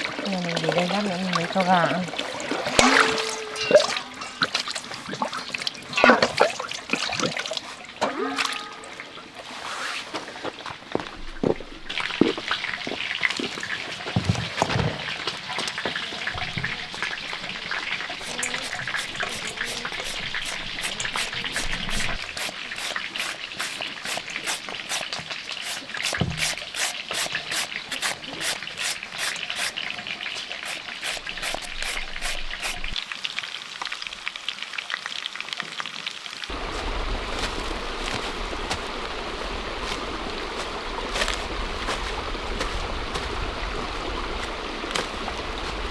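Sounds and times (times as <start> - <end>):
water trickling: 0.0 - 45.9
knocks and clatter of handling: 13.3 - 18.0.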